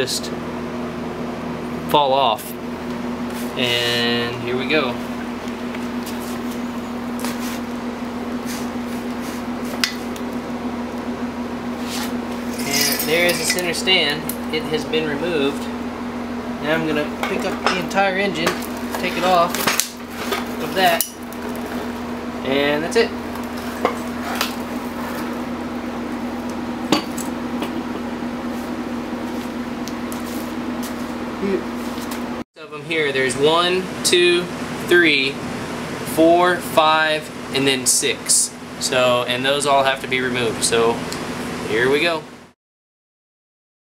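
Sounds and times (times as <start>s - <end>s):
steady hum: 0.0s - 42.6s
metal parts clanking: 12.6s - 13.6s.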